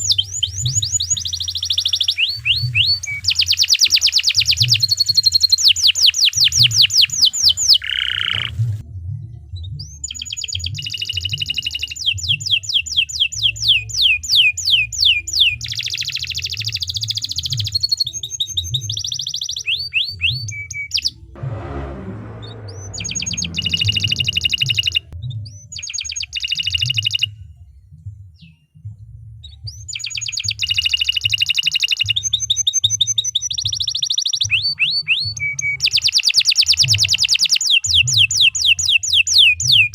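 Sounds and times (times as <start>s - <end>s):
canary singing trills: 0.0s - 8.6s
steady low hum: 21.4s - 25.2s.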